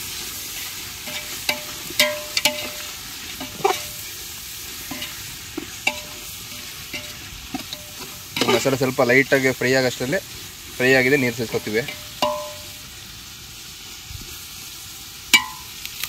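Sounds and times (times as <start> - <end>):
food sizzling in a pot: 0.0 - 16.0
spoon knocking and scraping a pot: 1.0 - 4.1, 4.8 - 8.8, 11.5 - 12.8, 15.4 - 15.7.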